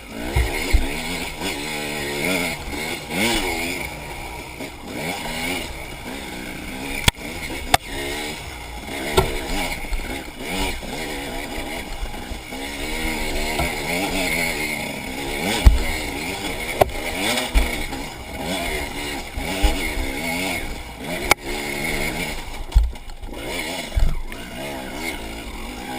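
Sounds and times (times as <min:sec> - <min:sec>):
dirt bike engine revving: 0:00.0 - 0:25.9
sharp knocks and thumps: 0:00.3 - 0:01.0, 0:09.0 - 0:10.1, 0:13.4 - 0:14.1, 0:15.4 - 0:18.1, 0:22.6 - 0:23.2, 0:23.9 - 0:24.2.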